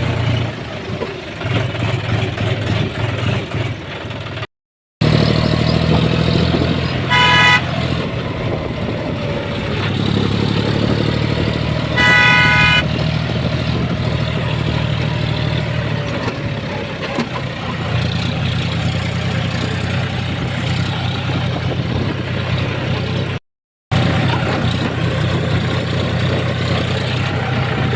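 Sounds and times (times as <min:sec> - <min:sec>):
tractor diesel engine running: 0:00.0 - 0:27.9
horn sounding: 0:06.9 - 0:08.1, 0:11.8 - 0:13.0.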